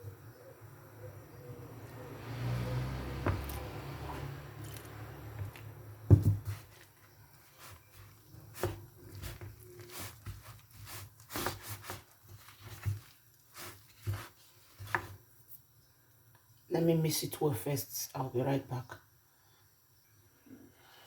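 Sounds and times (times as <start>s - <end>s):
spoon stirring batter in a bowl: 6.4s - 15.3s.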